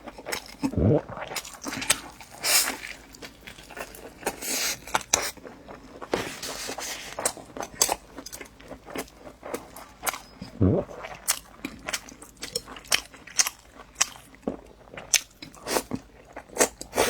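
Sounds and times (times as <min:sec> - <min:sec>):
rustling scrapes: 0:06.1 - 0:07.4.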